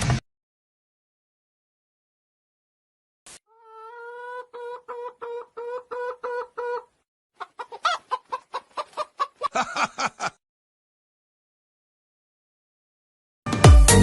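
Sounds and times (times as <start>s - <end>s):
chicken clucking: 3.5s - 10.3s.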